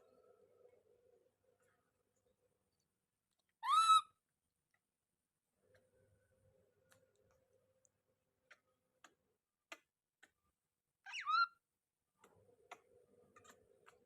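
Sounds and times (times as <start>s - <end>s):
baby monkey squealing: 3.6s - 4.1s, 11.1s - 11.6s.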